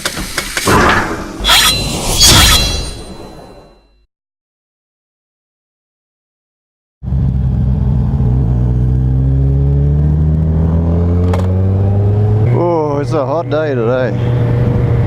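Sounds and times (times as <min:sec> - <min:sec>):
motorcycle engine drone: 0:07.0 - 0:15.0.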